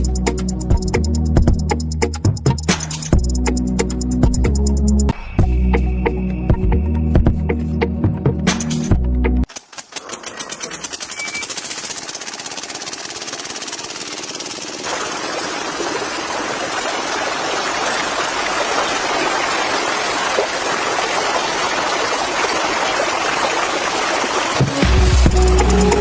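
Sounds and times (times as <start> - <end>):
small water pump motor running: 10.4 - 22.2
flowing splashing water: 11.4 - 26.0.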